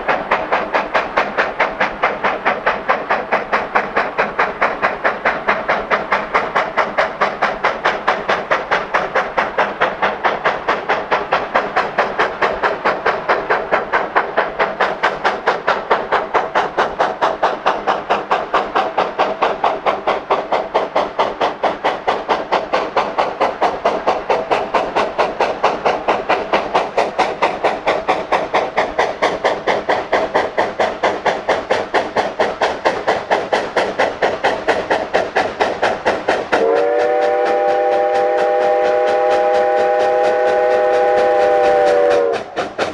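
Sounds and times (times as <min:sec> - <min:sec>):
steam locomotive chuffing: 0:00.0 - 0:42.9
steam chime whistle: 0:36.6 - 0:42.4.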